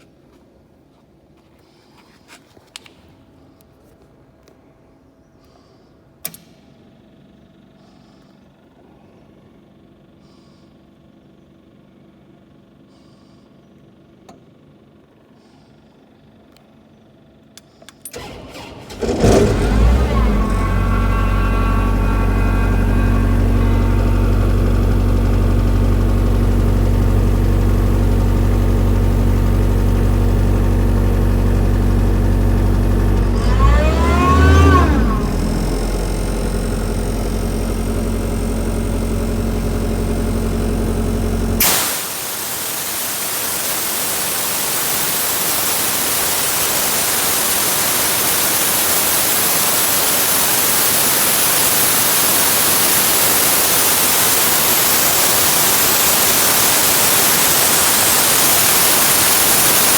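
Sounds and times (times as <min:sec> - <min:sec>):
air compressor engine running: 0:18.1 - 0:59.9
loud steady hiss: 0:40.4 - 0:59.9.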